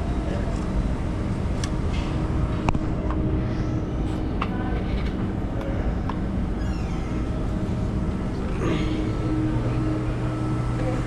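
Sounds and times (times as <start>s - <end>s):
low mechanical hum and rumble: 0.0s - 11.0s.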